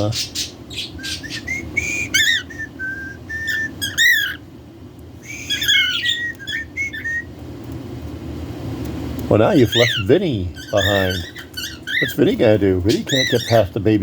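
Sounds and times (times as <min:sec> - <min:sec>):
budgerigars chirping and warbling: 0:00.0 - 0:02.7, 0:03.4 - 0:04.5, 0:05.3 - 0:07.3, 0:09.4 - 0:14.0.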